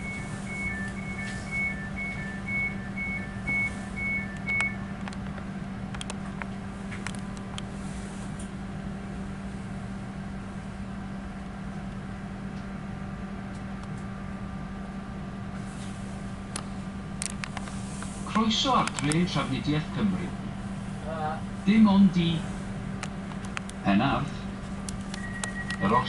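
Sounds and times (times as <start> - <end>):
two-tone door warning beeps: 0.0 - 5.1, 25.1 - 26.0
train low hum: 0.0 - 26.0.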